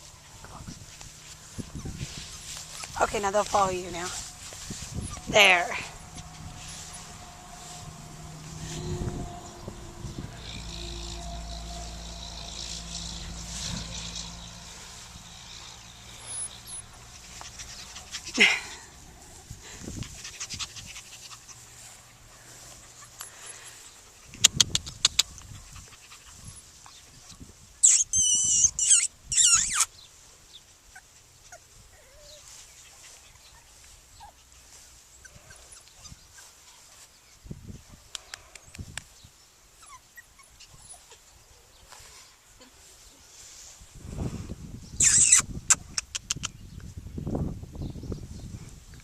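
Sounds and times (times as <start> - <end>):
puppies crying: 1.0 - 21.8, 27.8 - 29.9, 30.9 - 34.6, 39.8 - 41.4, 45.0 - 45.5
sharp clicks: 24.4 - 25.5.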